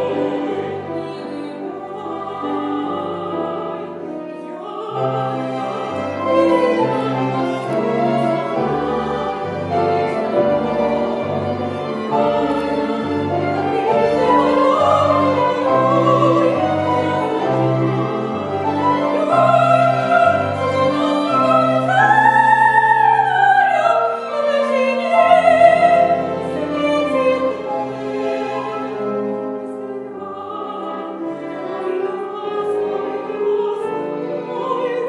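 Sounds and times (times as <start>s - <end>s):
operatic duet singing: 0.0s - 35.0s.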